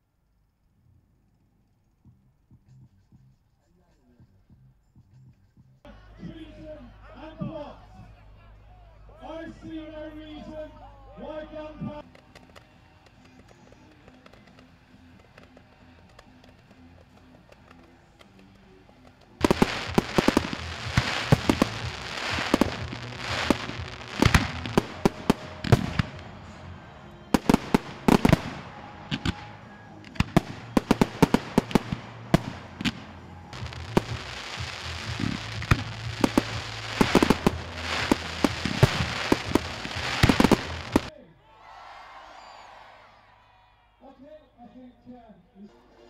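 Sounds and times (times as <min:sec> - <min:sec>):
continuous crackling: 0:11.6 - 0:41.1
fireworks banging: 0:11.6 - 0:41.1.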